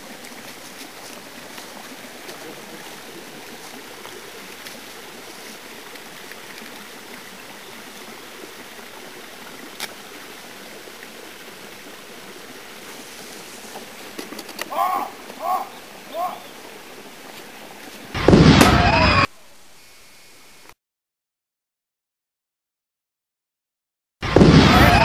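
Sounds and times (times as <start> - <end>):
stream water rushing: 0.0 - 19.3.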